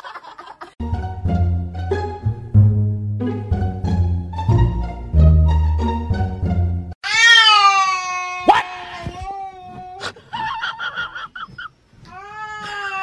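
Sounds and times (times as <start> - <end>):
cat yowling: 7.0 - 10.0.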